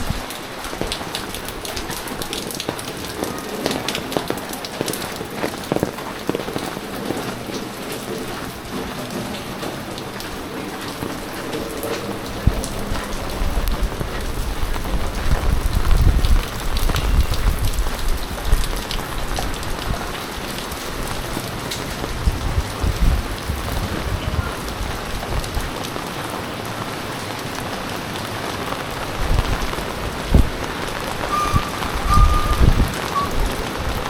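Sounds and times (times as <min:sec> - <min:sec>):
heavy rain splattering: 0:00.0 - 0:34.0
low rumbles: 0:29.2 - 0:34.0.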